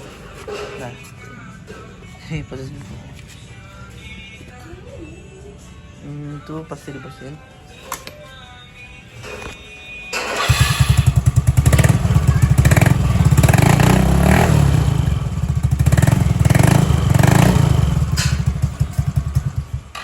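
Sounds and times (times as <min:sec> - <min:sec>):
scooter engine idling: 0:10.2 - 0:20.0
scooter throttle blips: 0:10.2 - 0:20.0.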